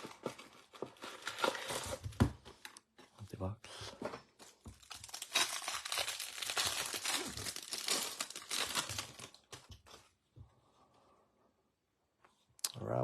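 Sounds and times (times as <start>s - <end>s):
plastic wrapper crinkling and tearing: 0.0s - 2.8s, 4.4s - 10.1s.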